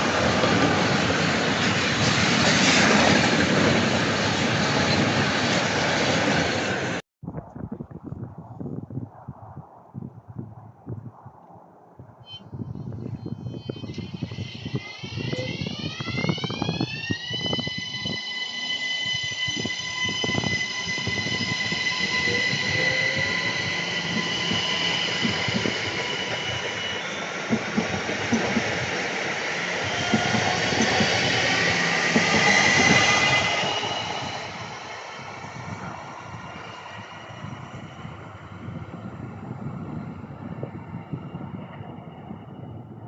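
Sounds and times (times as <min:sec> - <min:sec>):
train whine: 0:12.3 - 0:43.0
wheel and rail noise: 0:13.5 - 0:42.8.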